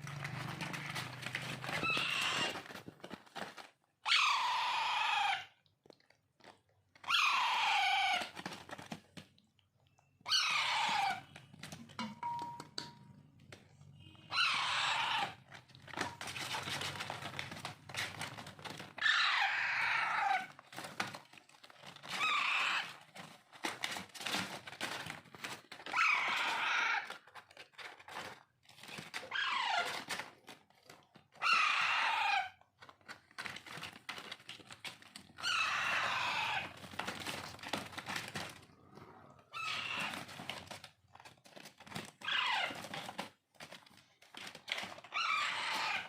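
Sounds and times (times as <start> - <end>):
clicking and rustling: 0.0 - 3.8, 15.4 - 19.0, 20.4 - 31.4, 32.6 - 35.4, 36.4 - 46.0
parakeet chicks begging screeches: 1.8 - 2.6, 4.1 - 5.5, 10.3 - 11.2, 14.3 - 15.4, 31.4 - 32.5, 35.4 - 36.7, 45.2 - 46.0.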